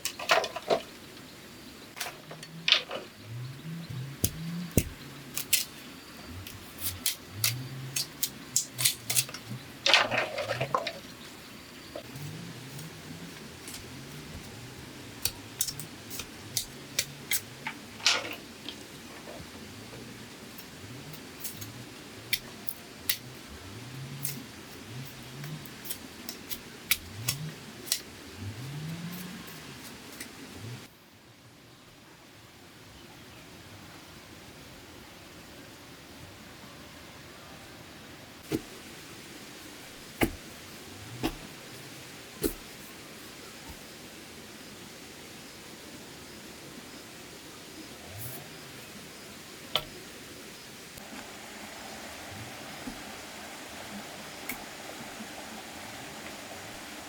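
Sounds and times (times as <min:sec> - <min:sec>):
bamboo clicks and snaps: 0:03.9 - 0:05.8, 0:06.4 - 0:10.7, 0:15.1 - 0:18.8, 0:20.6 - 0:23.3, 0:25.1 - 0:28.1.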